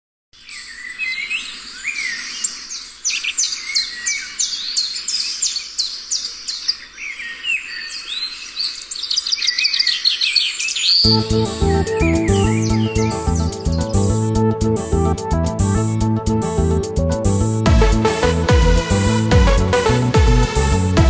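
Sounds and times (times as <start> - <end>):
high down-sweeping bird chirps: 0.4 - 16.1.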